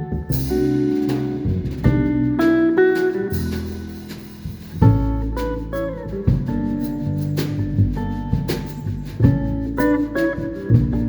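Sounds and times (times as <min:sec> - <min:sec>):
plucked string melody: 0:00.0 - 0:11.0.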